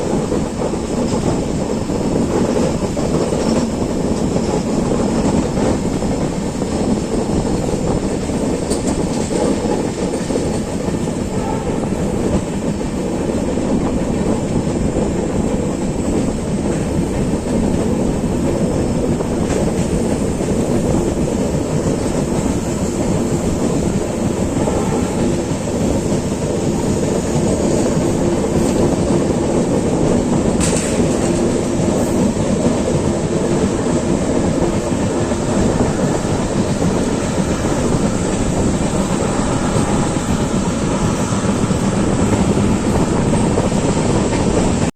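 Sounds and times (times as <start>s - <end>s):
train wheels on track: 0.0s - 44.9s.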